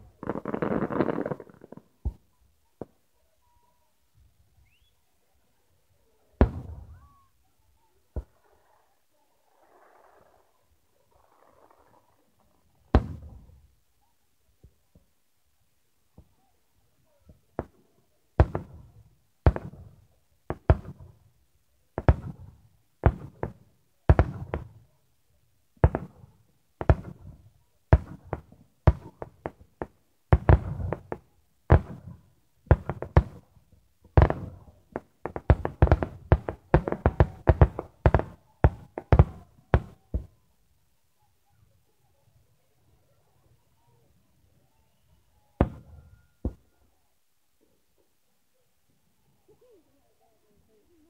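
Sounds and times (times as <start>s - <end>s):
firework shells booming: 6.4s - 7.0s, 12.9s - 13.5s, 25.8s - 33.5s, 34.1s - 40.3s.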